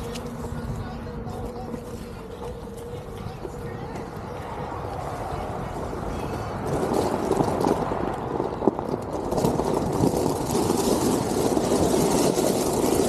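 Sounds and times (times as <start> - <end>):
wind on microphone: 0.0 - 13.0
tyre rolling over dirt: 5.9 - 13.0.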